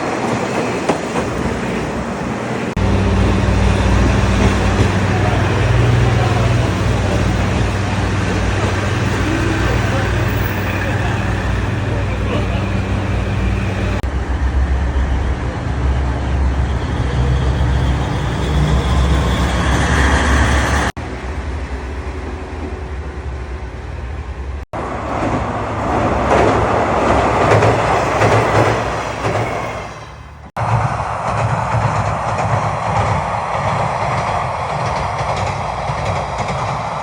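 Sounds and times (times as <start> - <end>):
train wheels rumbling on track: 0.0 - 37.0
diesel engine drone: 2.7 - 20.9.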